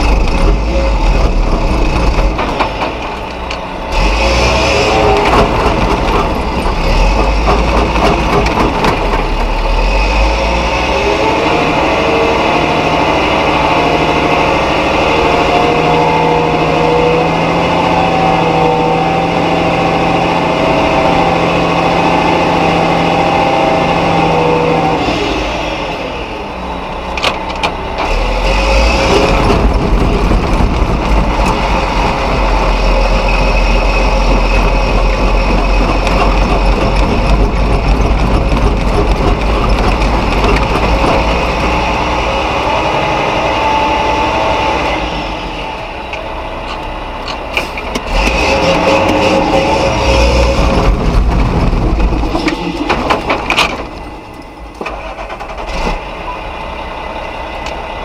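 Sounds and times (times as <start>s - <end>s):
truck diesel engine straining: 0.0s - 58.0s.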